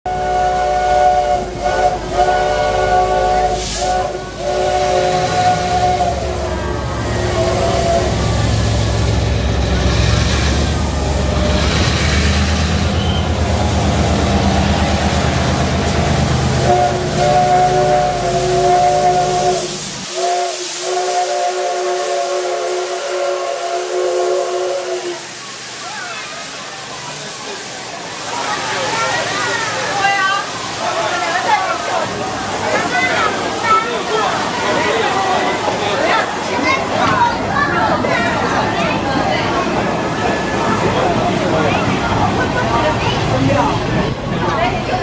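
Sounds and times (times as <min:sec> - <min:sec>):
locomotive whistle blasts: 0:00.1 - 0:09.2, 0:12.8 - 0:13.5, 0:16.6 - 0:25.4
locomotive engine rumble: 0:00.1 - 0:45.0
diesel engine rumble: 0:03.8 - 0:20.1.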